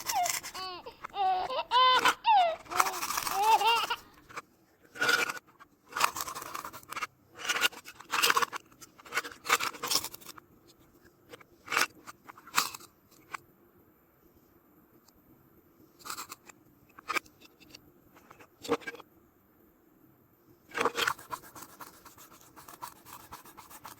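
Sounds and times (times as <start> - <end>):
toy knife scraping cuts: 0.0 - 4.2, 4.9 - 10.2, 20.8 - 23.9.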